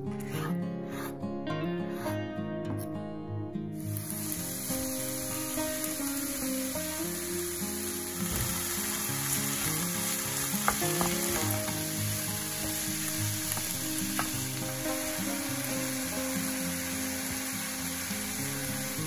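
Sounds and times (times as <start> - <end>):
soft background music: 0.0 - 19.0
chicken sizzling in frying pan: 3.8 - 19.0.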